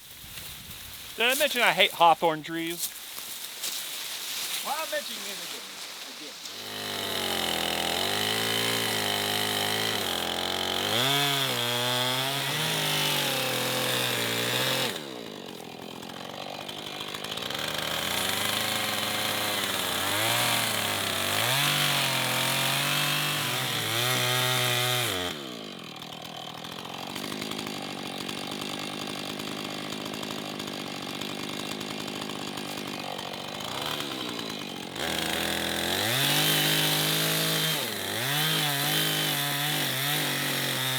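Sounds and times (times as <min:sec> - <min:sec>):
chainsaw cutting branches: 0:00.0 - 0:40.9.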